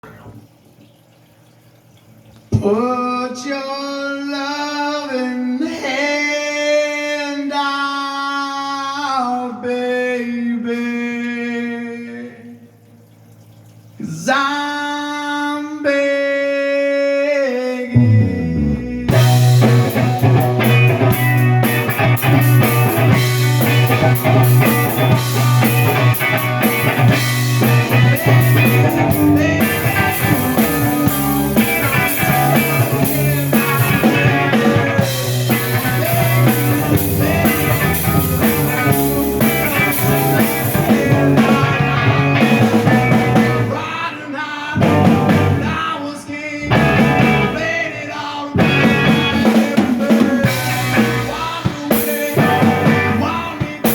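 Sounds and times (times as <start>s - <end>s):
rock band playing with singing: 18.0s - 53.9s.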